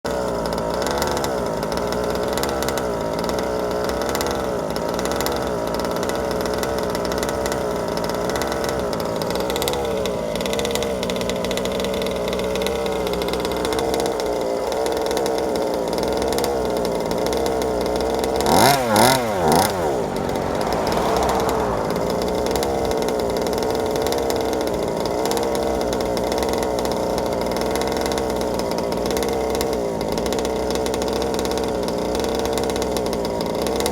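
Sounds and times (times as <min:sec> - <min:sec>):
small two-stroke engine idling: 0:00.1 - 0:33.9
engine throttle blips: 0:16.9 - 0:29.3.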